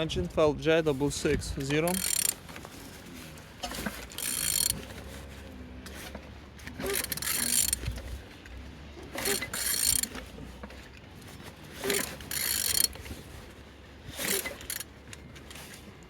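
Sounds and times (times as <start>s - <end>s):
ratchet wrench clicking and scraping: 1.6s - 2.6s, 3.6s - 5.0s, 6.8s - 8.2s, 9.1s - 10.3s, 11.8s - 13.1s, 14.1s - 15.0s.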